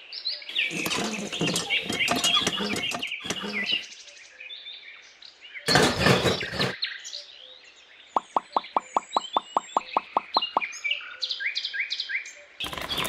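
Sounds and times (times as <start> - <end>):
birds chirping: 0.5 - 4.0.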